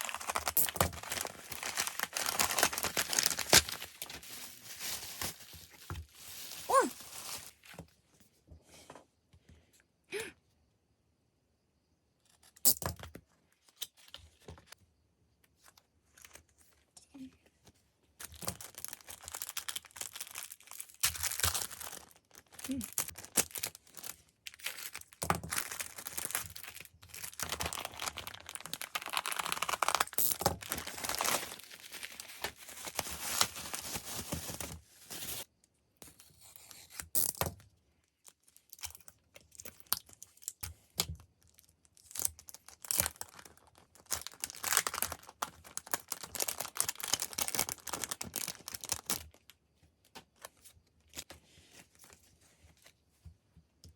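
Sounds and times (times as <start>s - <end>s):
packaging torn and crinkled: 0.0s - 7.7s, 18.2s - 35.5s, 41.4s - 49.6s.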